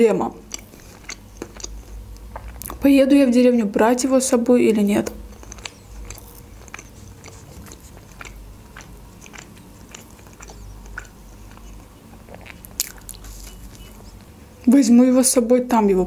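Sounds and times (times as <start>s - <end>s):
person chewing with mouth clicks: 0.3s - 2.9s, 5.0s - 14.4s.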